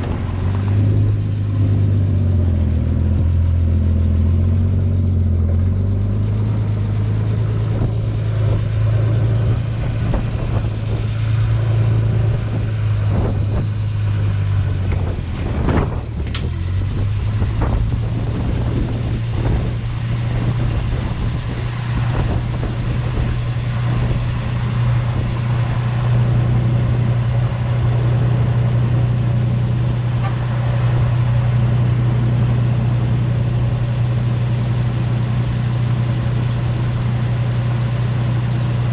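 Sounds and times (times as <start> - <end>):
truck engine running: 0.0 - 38.9
clunks: 14.8 - 16.6.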